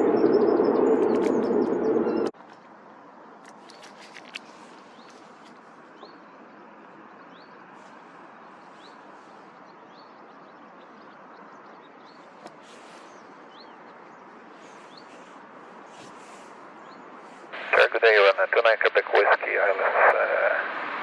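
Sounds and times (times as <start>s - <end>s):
small bird chirping: 3.4s - 6.3s.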